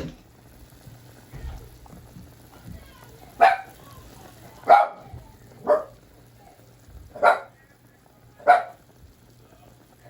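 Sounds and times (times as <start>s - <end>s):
dog barking: 3.4s - 3.8s, 4.6s - 6.0s, 7.1s - 7.6s, 8.4s - 8.8s.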